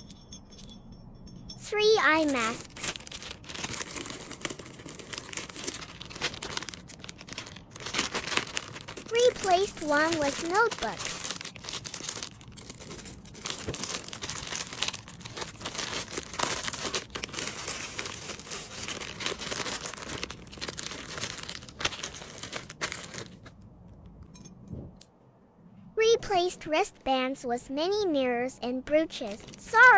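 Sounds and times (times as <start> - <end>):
packaging crinkling and rustling: 2.2 - 23.6, 29.2 - 29.9.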